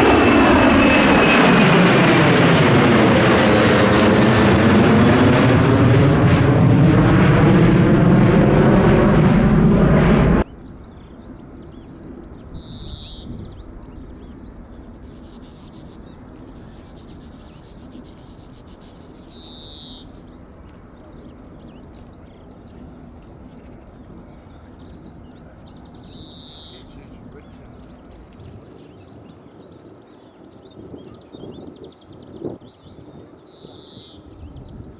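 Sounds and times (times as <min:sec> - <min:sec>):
jet engines at takeoff: 0:00.0 - 0:34.9
high falling bird call: 0:10.4 - 0:28.4.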